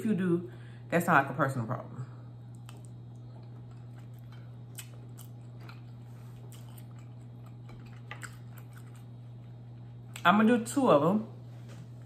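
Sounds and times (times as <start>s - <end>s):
steady low hum: 0.0s - 12.0s
person chewing soft food: 2.4s - 10.2s.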